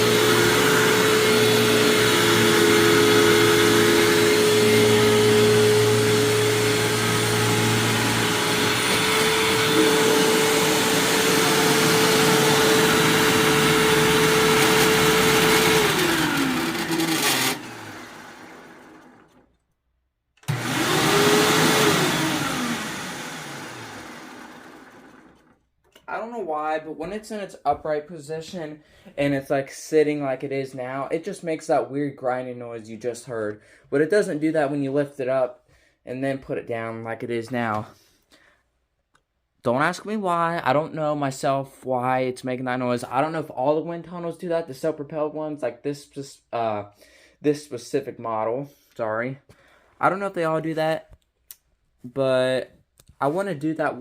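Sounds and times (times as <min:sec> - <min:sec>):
grinding noise: 0:00.0 - 0:19.4
upright vacuum running: 0:00.0 - 0:19.4, 0:20.4 - 0:25.6
vacuum motor winding down: 0:00.0 - 0:19.5, 0:20.4 - 0:25.6.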